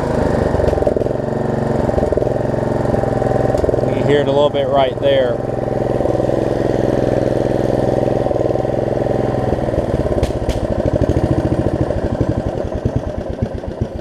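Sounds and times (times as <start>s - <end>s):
riding mower engine winding down: 0.0s - 14.0s.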